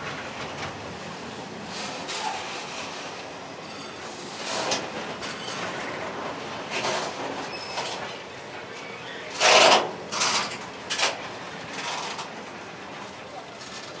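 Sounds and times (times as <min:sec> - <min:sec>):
freight train wagons rolling: 0:00.0 - 0:14.0.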